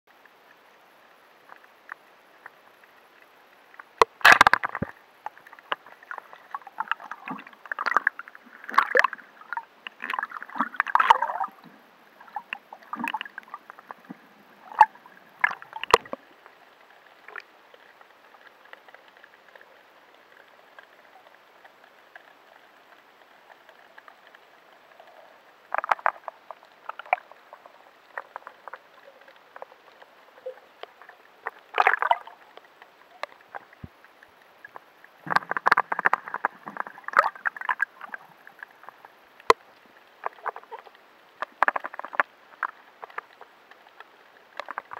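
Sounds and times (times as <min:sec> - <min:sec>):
steady hiss: 0:00.1 - 0:44.9
underwater sharp clicks: 0:03.7 - 0:11.6, 0:12.3 - 0:16.2, 0:34.6 - 0:44.9.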